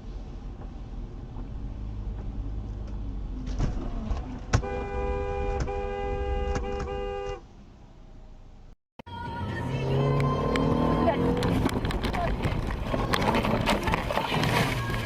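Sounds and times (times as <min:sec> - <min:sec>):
road and engine rumble: 0:00.0 - 0:15.0
car horn blasts: 0:04.6 - 0:07.5.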